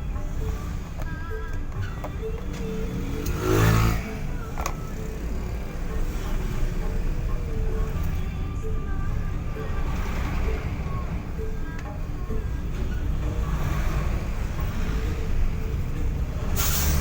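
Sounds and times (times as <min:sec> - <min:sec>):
vehicle passing: 0:02.6 - 0:11.5.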